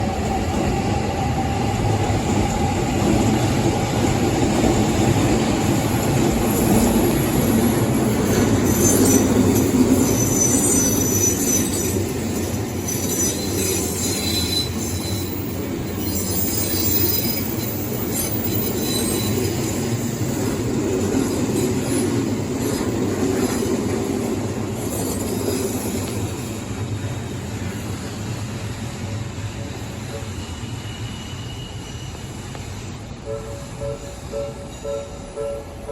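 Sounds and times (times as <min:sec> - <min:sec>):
wheels rumbling on rail: 0:00.0 - 0:35.9
high wheel squeal: 0:06.5 - 0:20.7, 0:27.4 - 0:35.9.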